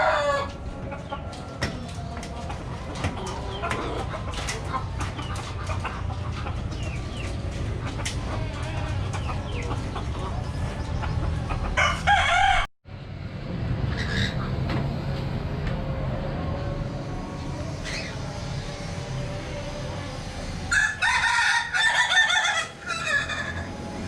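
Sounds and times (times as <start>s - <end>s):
budgerigars chirping and chattering: 3.2s - 8.1s, 13.9s - 14.5s, 17.8s - 18.2s.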